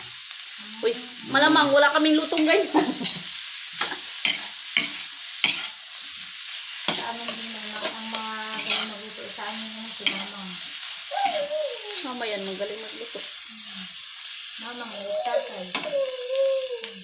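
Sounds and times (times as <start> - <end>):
food sizzling in oil: 0.0 - 17.0
metal spatula scraping pan: 3.8 - 5.8, 6.8 - 9.3, 9.9 - 10.4.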